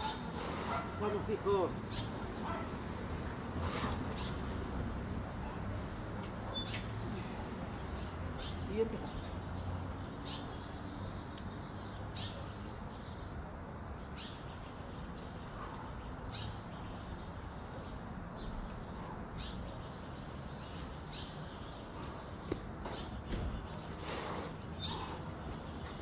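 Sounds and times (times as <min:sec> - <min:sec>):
outdoor background noise: 0:00.0 - 0:26.0
bird chirping: 0:14.0 - 0:26.0.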